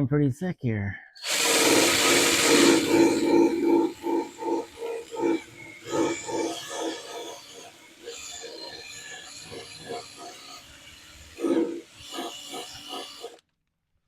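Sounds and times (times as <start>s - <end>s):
power tool grinding metal: 1.2s - 13.4s.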